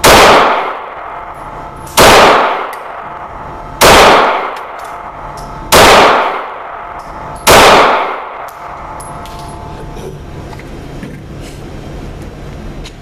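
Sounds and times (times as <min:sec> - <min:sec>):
pistol shots echoing indoors: 0:00.0 - 0:09.7.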